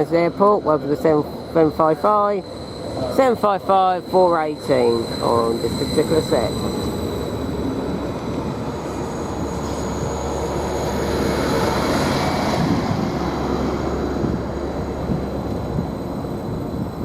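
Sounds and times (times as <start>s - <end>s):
train rumbling into platform: 0.0s - 17.0s.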